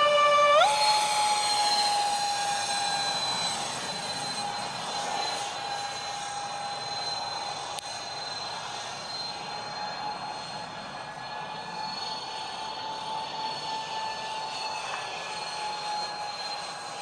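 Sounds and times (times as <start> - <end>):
model jet fans whining: 0.0 - 17.0.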